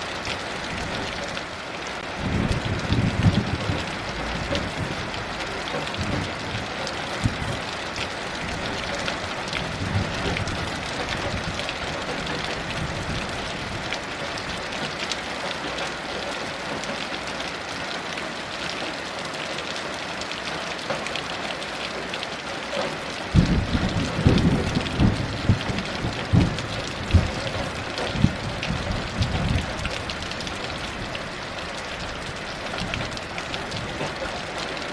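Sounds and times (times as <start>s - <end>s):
heavy rain: 0.0s - 34.9s
rain drops hitting surfaces: 0.0s - 34.9s
thunder rumble: 2.2s - 7.6s, 23.3s - 31.0s.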